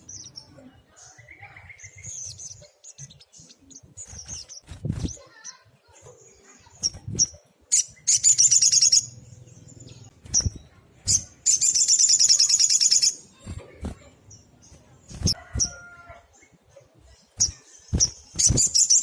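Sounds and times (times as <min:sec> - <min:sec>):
songbird trilling: 0:06.8 - 0:13.2.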